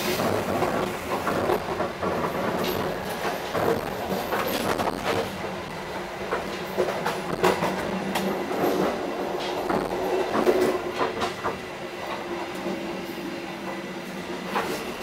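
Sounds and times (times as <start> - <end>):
train rumble and hum: 0.0 - 15.0
clacks and rattles: 0.2 - 5.6.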